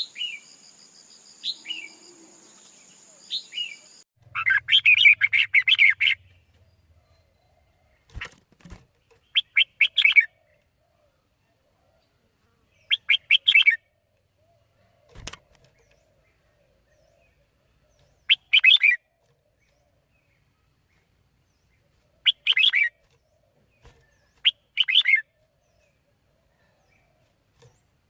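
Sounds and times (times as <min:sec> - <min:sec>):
bird chirping rapidly: 0:00.0 - 0:06.4, 0:09.2 - 0:10.3, 0:12.9 - 0:13.8, 0:18.2 - 0:19.0, 0:22.2 - 0:22.9, 0:24.4 - 0:25.2.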